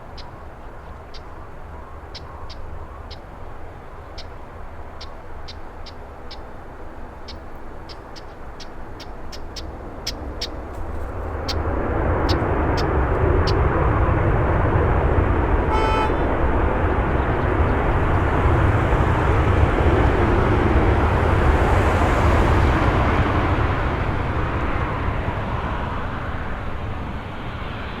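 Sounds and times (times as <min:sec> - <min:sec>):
jet engine roar: 0:00.0 - 0:28.0
wind rumbling over microphone: 0:00.0 - 0:28.0
short horn-like tone: 0:15.7 - 0:16.3.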